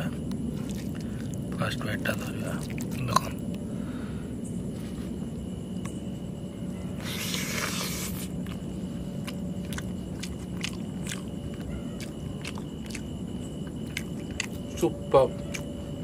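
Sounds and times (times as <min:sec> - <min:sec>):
steady low hum: 0:00.0 - 0:16.0
person chewing food: 0:00.2 - 0:01.5, 0:02.5 - 0:03.6, 0:07.0 - 0:16.0.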